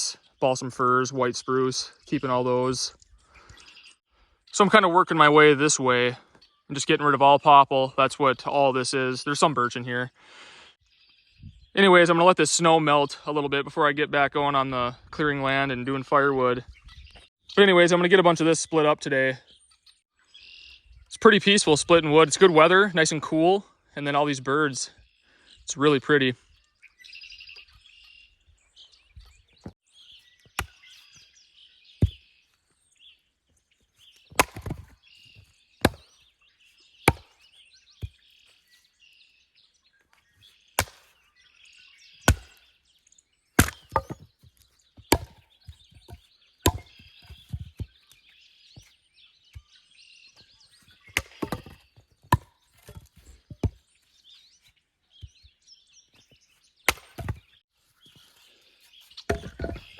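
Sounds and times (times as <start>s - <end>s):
songbirds chirping: 0.0s - 59.9s
axe chopping firewood: 30.4s - 31.2s, 32.0s - 32.2s, 34.2s - 36.2s, 37.0s - 38.2s, 40.8s - 41.3s, 42.2s - 42.7s, 43.6s - 47.9s, 51.0s - 53.8s, 56.9s - 57.5s, 59.3s - 59.9s
split wood pieces knocking: 34.3s - 36.1s, 37.1s - 37.4s, 40.8s - 41.1s, 42.3s - 42.6s, 43.6s - 47.9s, 51.1s - 53.8s, 56.9s - 57.5s, 59.3s - 59.9s.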